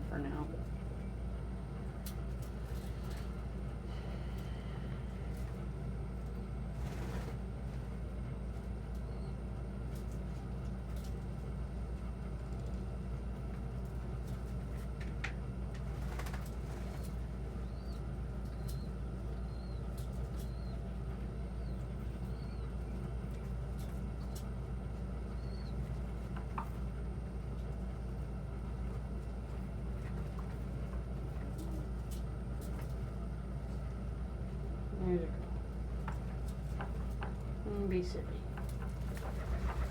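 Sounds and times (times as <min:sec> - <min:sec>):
steady low hum: 0:00.0 - 0:39.9
birds chirping: 0:17.6 - 0:20.8.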